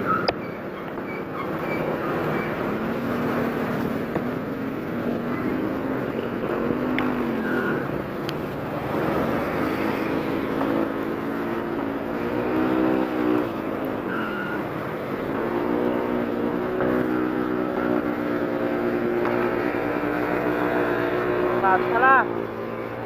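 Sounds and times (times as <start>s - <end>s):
motorcycle engine revving: 0.0s - 23.0s
wind and road noise: 0.0s - 23.0s.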